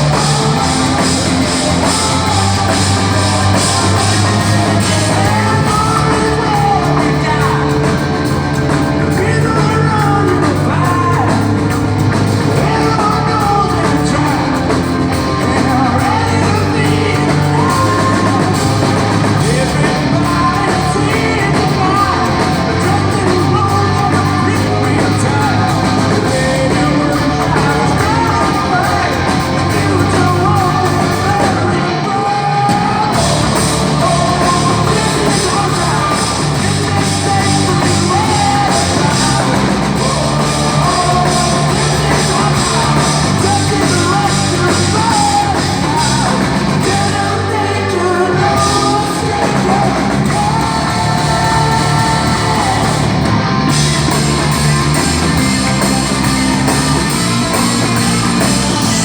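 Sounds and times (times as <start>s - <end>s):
live hard rock band: 0.0s - 59.0s
singer belting a melody: 0.0s - 59.0s.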